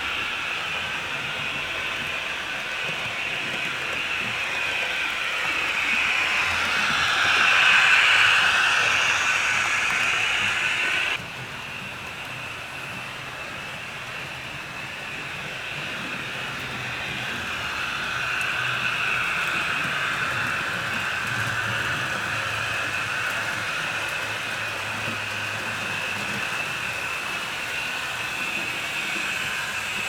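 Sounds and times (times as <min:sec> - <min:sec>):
model train wheels on track: 0:00.0 - 0:30.0
electric motor hum: 0:04.0 - 0:11.2.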